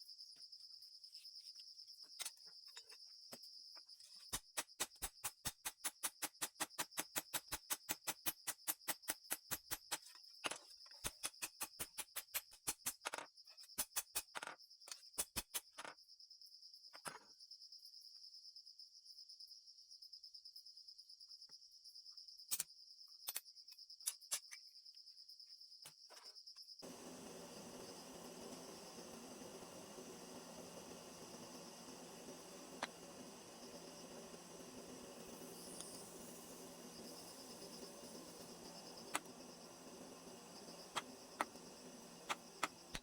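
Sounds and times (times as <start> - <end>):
cricket trill: 0.0 - 43.0
steady hiss: 26.8 - 43.0.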